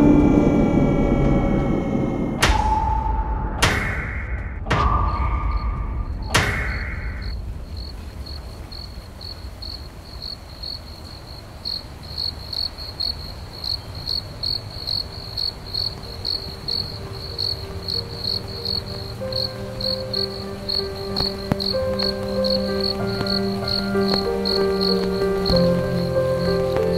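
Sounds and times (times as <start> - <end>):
soft sustained music: 0.0 - 3.9, 13.8 - 26.9
thuds: 2.4 - 8.1
crickets chirping: 4.8 - 26.9.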